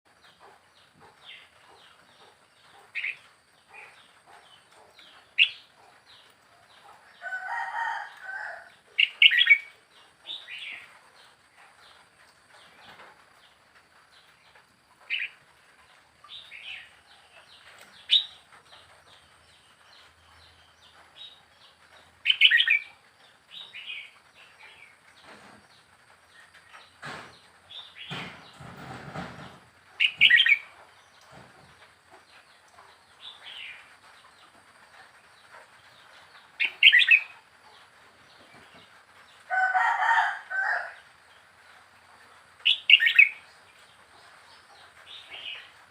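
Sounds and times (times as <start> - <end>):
bird chirps and whistled calls: 30.0 - 30.6.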